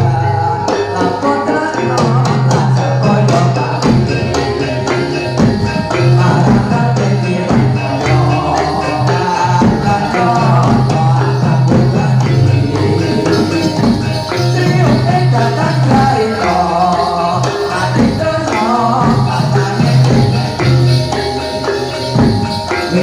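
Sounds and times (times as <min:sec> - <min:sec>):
drum and percussion strikes: 0:00.0 - 0:23.0
wavering melody line: 0:03.1 - 0:23.0
steady low tone: 0:07.6 - 0:15.2.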